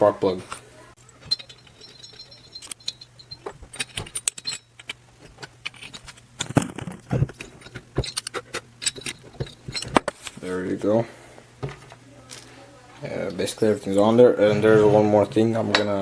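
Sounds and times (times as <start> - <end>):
metal clinking and rattling: 1.0 - 10.2.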